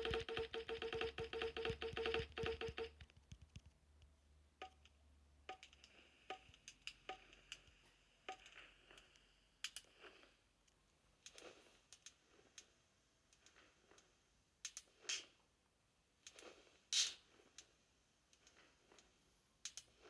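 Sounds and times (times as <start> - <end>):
rapid buzzy clicking: 0.0 - 3.8.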